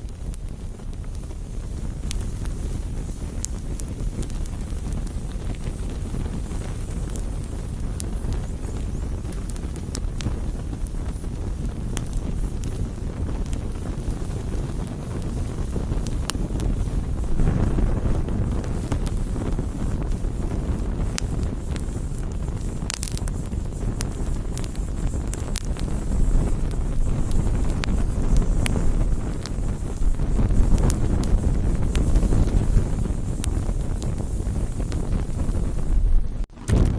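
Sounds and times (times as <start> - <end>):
flames rumbling: 0.0 - 36.9
wood crackling and popping: 0.0 - 36.9.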